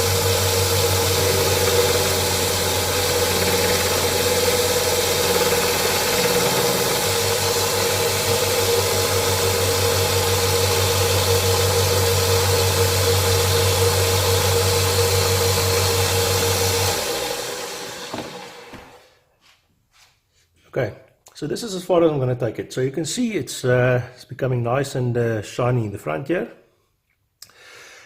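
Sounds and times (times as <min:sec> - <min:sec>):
grinding machine motor hum: 0:00.0 - 0:19.0.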